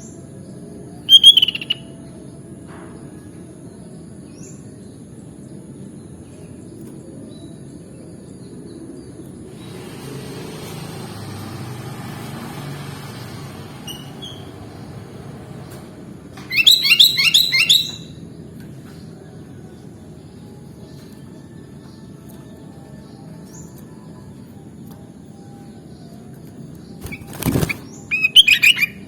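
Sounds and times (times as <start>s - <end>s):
bulbul chirping: 1.1s - 1.9s, 16.5s - 18.1s
hiss: 9.6s - 11.6s.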